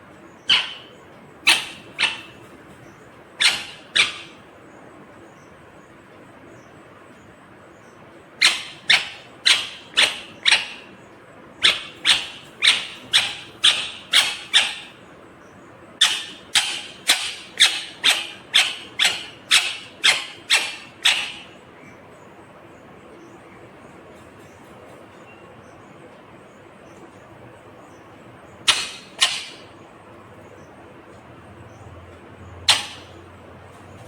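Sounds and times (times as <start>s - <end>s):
parrot squawking: 0.4s - 2.6s, 3.4s - 4.5s, 8.4s - 11.0s, 11.6s - 15.0s, 16.0s - 21.6s, 28.6s - 29.8s, 32.6s - 33.3s.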